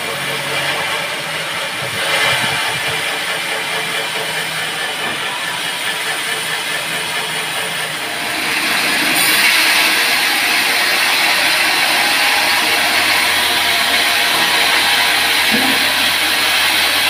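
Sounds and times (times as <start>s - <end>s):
band sawmill running: 0.0s - 17.0s.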